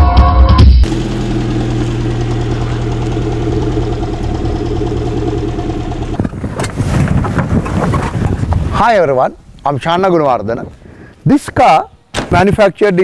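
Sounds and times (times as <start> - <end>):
intro music: 0.8 - 6.2
car engine idling: 0.8 - 6.9.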